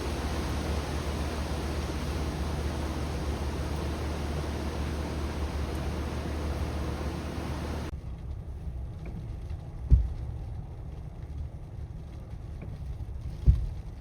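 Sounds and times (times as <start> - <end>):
strong wind buffeting microphone: 0.0 - 7.9
wind gust thumps: 0.0 - 7.9.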